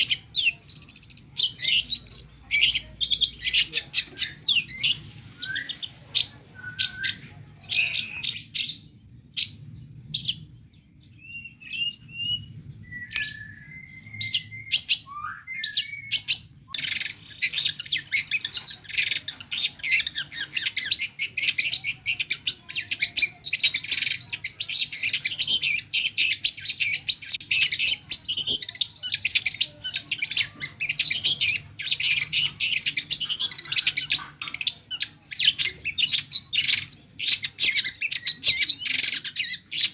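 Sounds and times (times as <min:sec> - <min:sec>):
bird calls and whistles: 0:00.0 - 0:08.8, 0:11.1 - 0:39.9
bird chattering song: 0:00.0 - 0:39.9.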